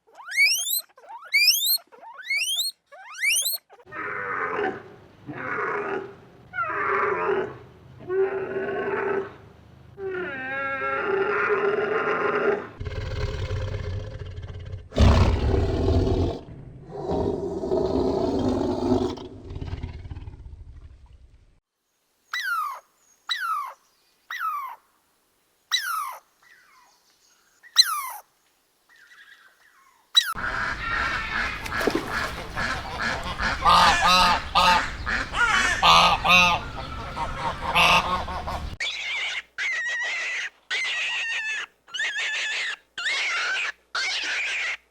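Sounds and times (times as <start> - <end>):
loud drawn-out animal calls: 0.0 - 9.4, 30.1 - 44.9
many birds calling and honking: 30.4 - 39.2.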